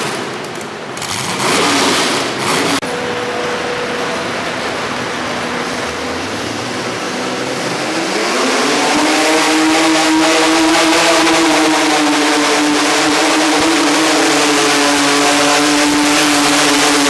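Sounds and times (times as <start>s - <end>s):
tractor engine revving: 0.0s - 17.0s.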